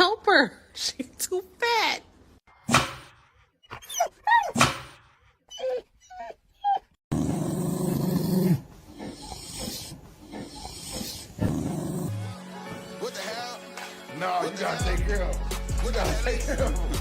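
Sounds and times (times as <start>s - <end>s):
dog yelping and whining: 3.6s - 4.8s, 5.5s - 12.1s
dog growling: 5.5s - 12.4s.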